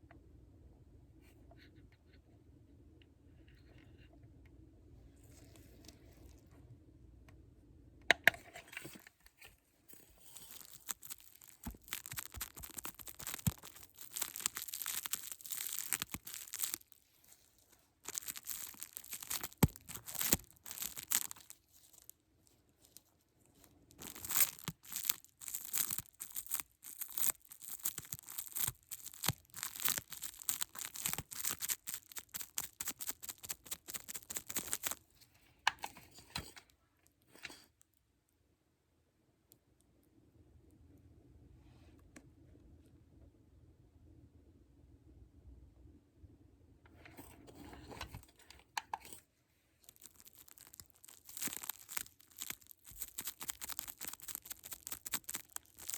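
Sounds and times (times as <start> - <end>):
crinkly material rustling: 5.2 - 6.5, 8.2 - 37.8, 46.9 - 55.9.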